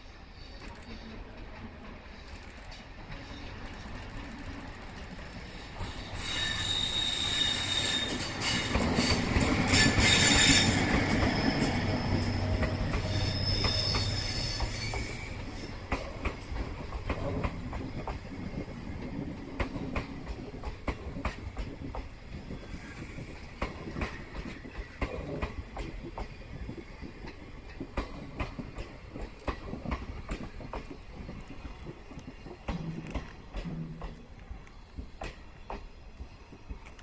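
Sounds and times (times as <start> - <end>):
train wheels squealing: 0.0 - 4.6, 5.2 - 16.2, 22.4 - 25.4
train wheels clicking over rail joints: 0.6 - 37.0.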